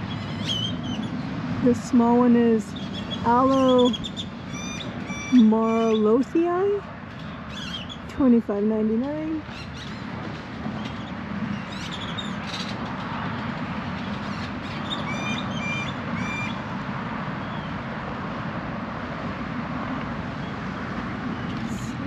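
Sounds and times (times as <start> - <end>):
bird chirps: 0.0 - 1.2, 2.7 - 6.1
rushing background noise: 0.0 - 22.0
bird calling: 2.7 - 6.2, 14.2 - 16.6.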